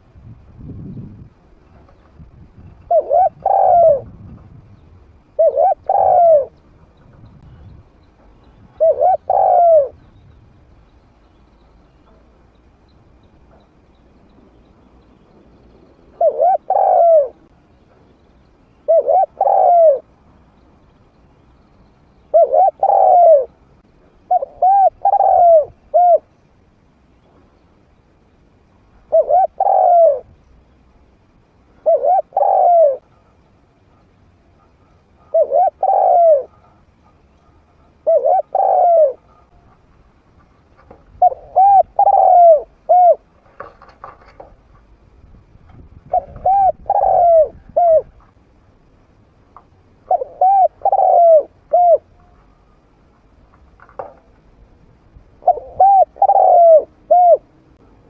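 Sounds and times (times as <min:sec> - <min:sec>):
dove cooing: 0:02.6 - 0:04.3, 0:05.3 - 0:07.7, 0:08.5 - 0:10.1, 0:16.0 - 0:17.6, 0:18.8 - 0:20.1, 0:22.2 - 0:23.6, 0:24.3 - 0:26.3, 0:29.0 - 0:30.3, 0:31.8 - 0:39.8, 0:40.8 - 0:44.6, 0:46.0 - 0:48.3, 0:50.1 - 0:52.7, 0:55.4 - 0:57.5.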